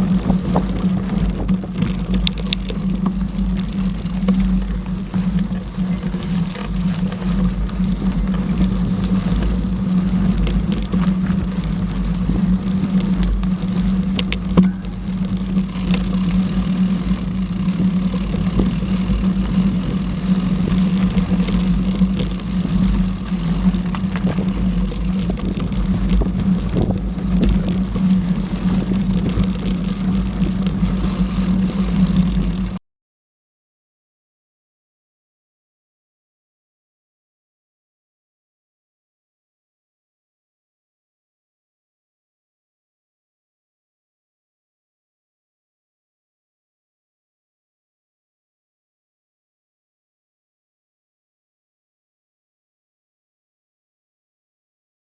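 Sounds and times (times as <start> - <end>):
bike clicks and rattles: 0.0 - 32.8
bike riding rumble: 0.0 - 32.8
wind buffeting microphone: 0.0 - 32.8.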